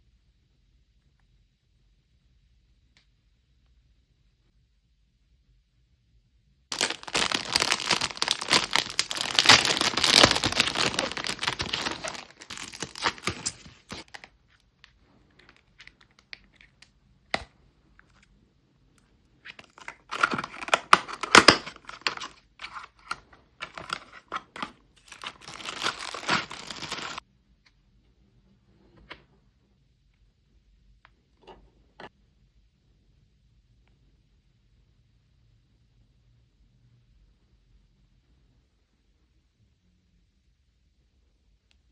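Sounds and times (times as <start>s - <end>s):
packaging tearing and crinkling: 6.7s - 14.3s, 19.6s - 27.2s.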